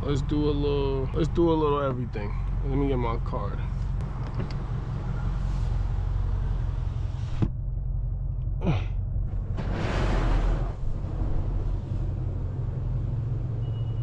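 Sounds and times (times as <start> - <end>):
car engine idling: 0.0 - 9.7.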